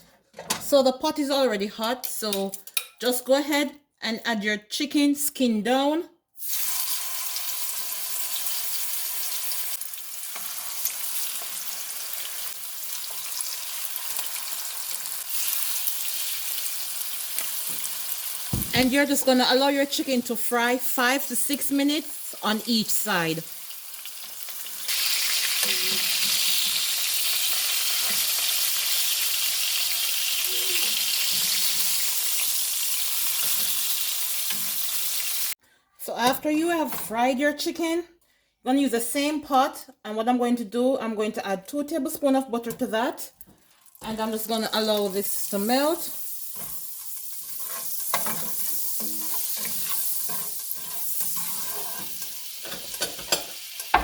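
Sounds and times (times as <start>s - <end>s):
chicken sizzling in hot oil: 6.4s - 18.8s, 23.2s - 35.6s, 43.7s - 54.0s.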